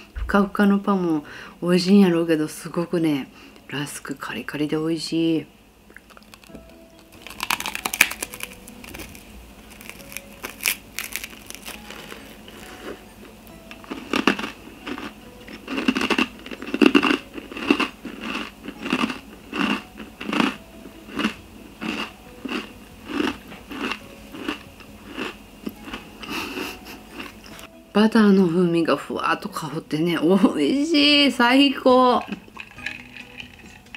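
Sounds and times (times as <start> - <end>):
crunchy rusk chewing: 5.9 - 13.0, 13.8 - 26.3.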